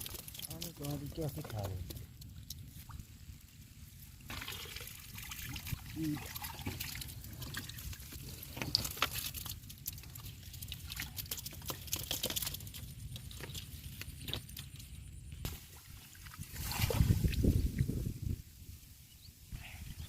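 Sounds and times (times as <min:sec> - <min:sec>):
shallow water sloshing: 0:00.0 - 0:17.6.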